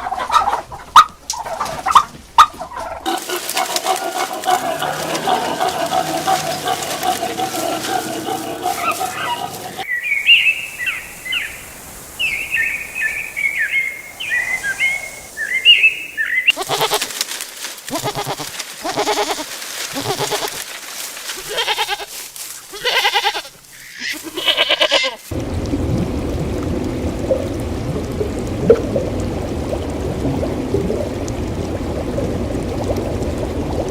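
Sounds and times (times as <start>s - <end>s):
pouring water rushing: 0.0s - 24.4s, 25.3s - 33.9s
farm animals bleating: 4.4s - 9.8s, 16.5s - 17.1s, 17.9s - 20.6s, 21.4s - 25.3s
small birds chirping: 7.0s - 16.8s.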